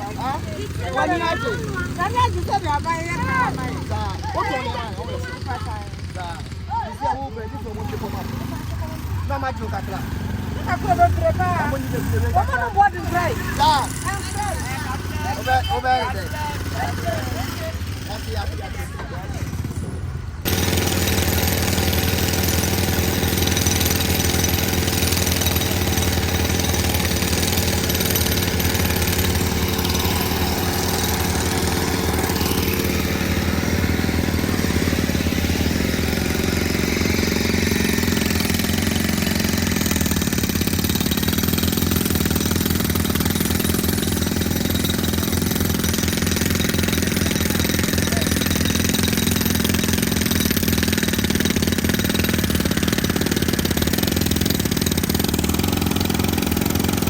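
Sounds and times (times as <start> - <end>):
engine running with rapid pulse: 19.4 - 57.0.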